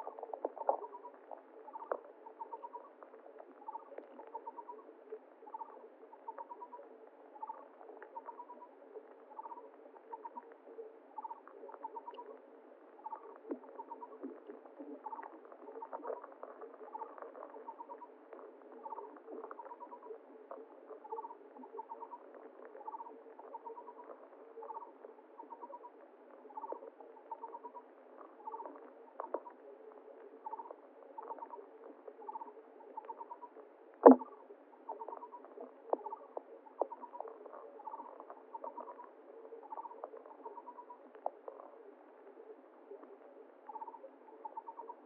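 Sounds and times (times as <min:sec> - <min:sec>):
soft water noise: 0:00.0 - 0:45.0
faint clicks: 0:11.2 - 0:25.8, 0:34.0 - 0:41.8.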